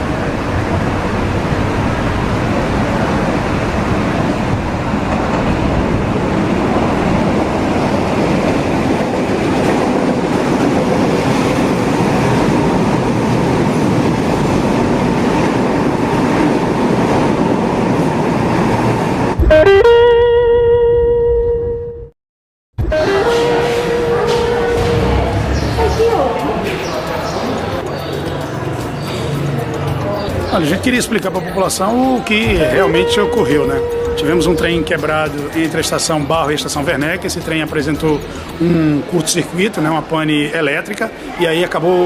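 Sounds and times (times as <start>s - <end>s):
train rumbling on rails: 0.0s - 19.6s, 22.8s - 41.4s
loud steady pitched tone: 19.3s - 22.1s, 22.8s - 30.5s, 32.4s - 37.0s.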